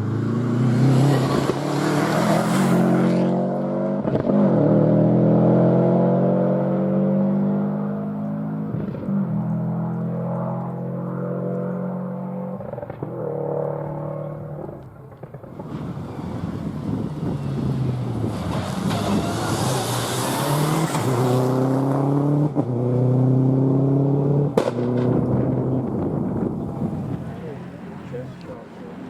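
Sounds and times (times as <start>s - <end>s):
rally car engine revving: 0.0s - 29.0s
sharp crack: 24.5s - 25.6s.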